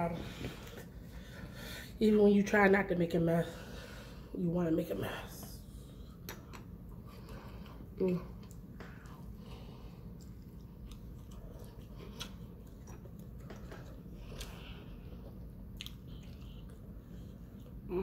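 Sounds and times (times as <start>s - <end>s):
chewing food: 6.9s - 17.9s.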